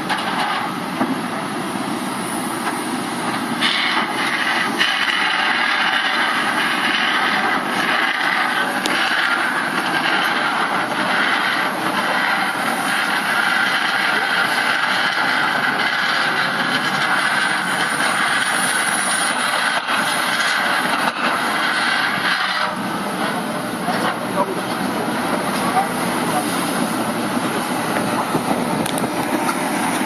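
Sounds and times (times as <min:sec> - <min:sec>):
excavator engine clattering and grinding: 0:00.0 - 0:30.0.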